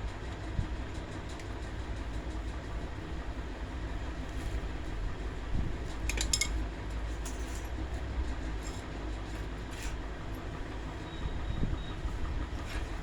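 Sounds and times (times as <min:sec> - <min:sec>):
steady low hum: 0:00.0 - 0:13.0
light metallic clinks: 0:06.1 - 0:06.6.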